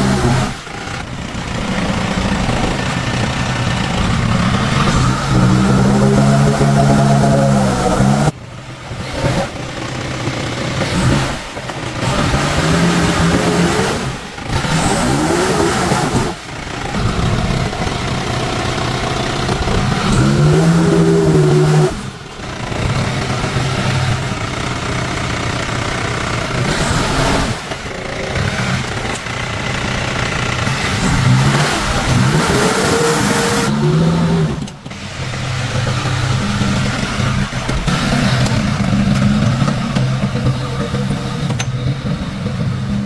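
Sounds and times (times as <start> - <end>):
vehicle engine revving: 0.0 - 43.0.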